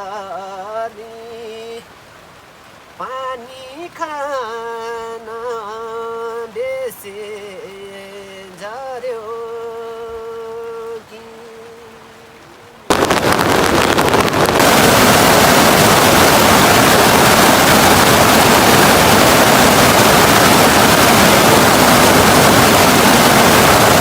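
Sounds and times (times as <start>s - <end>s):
loud steady rushing noise: 12.9s - 24.0s.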